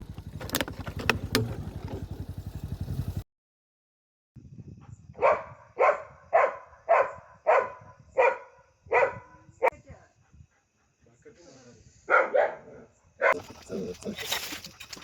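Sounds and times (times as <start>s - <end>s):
vehicle engine running: 0.0s - 3.2s
dog barking: 5.2s - 9.7s, 12.1s - 14.0s.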